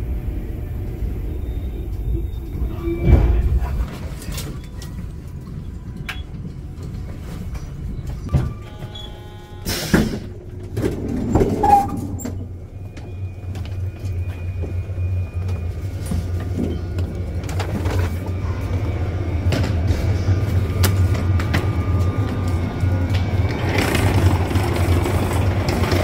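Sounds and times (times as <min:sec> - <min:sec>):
train low hum: 0:00.0 - 0:26.0
footsteps and luggage clatter: 0:03.2 - 0:09.1, 0:09.8 - 0:26.0
train door opening hiss: 0:09.6 - 0:10.4.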